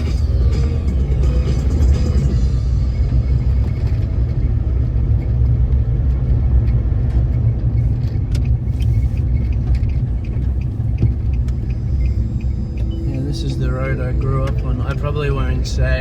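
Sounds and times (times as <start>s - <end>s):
car driving rumble: 0.0s - 16.0s.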